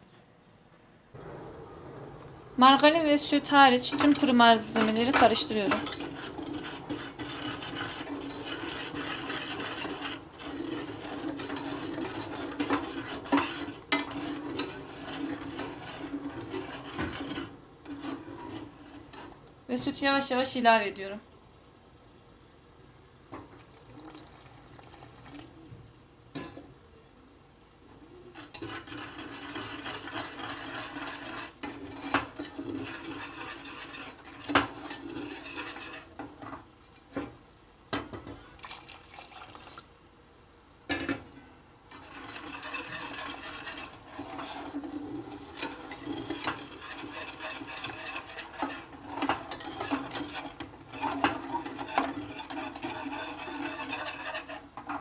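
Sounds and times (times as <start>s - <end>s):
utensil stirring and scraping a pot: 2.6s - 19.9s, 23.3s - 39.9s, 40.9s - 55.0s
utensil clinking against pot: 3.7s - 19.4s, 28.1s - 36.6s, 41.9s - 55.0s.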